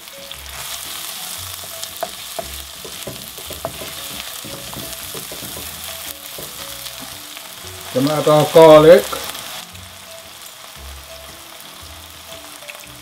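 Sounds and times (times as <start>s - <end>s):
onions sizzling in oil: 0.0s - 13.0s
spatula scraping a wok: 0.4s - 7.2s.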